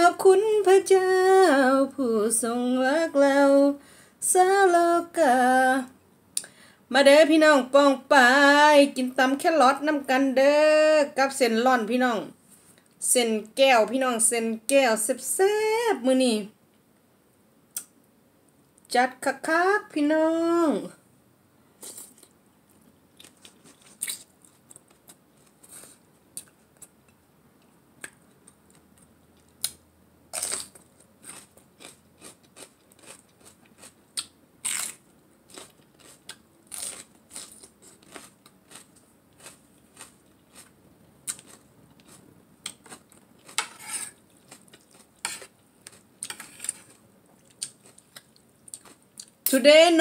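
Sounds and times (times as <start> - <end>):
crunchy chewing of raw vegetables: 21.8 - 27.2, 28.0 - 49.4.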